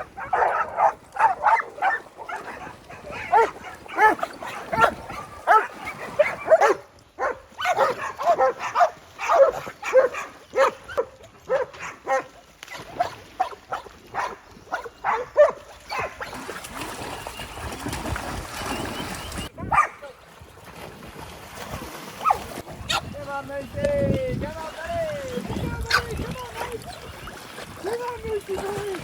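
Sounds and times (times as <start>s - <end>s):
dogs barking: 0.0s - 16.3s, 19.6s - 20.1s, 22.2s - 23.1s, 25.9s - 26.2s.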